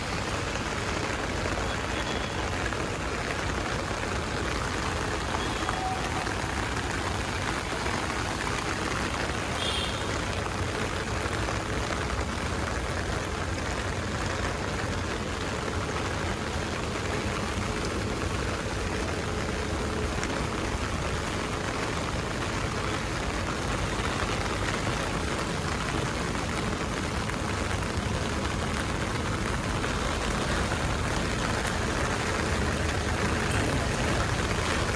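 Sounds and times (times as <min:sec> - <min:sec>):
heavy rain hissing: 0:00.0 - 0:34.9.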